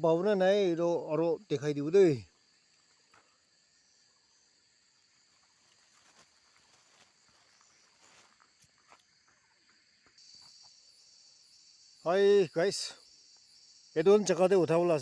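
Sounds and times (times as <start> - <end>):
night insects trilling: 0.0 - 15.0
high insect buzz: 1.4 - 15.0
soft rustles: 5.6 - 9.0.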